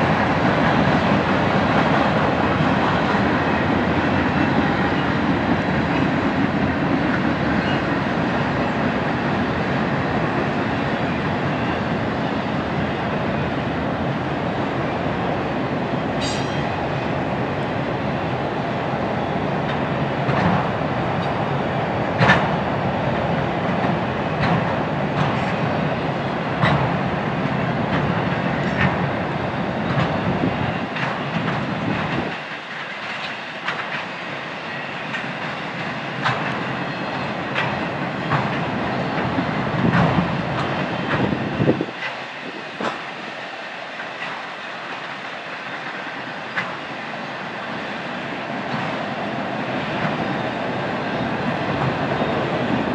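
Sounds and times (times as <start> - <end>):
train rolling rumble: 0.0 - 52.9
wheels clicking over rail joints: 22.1 - 22.6, 23.2 - 25.8, 26.5 - 34.2, 35.1 - 43.2.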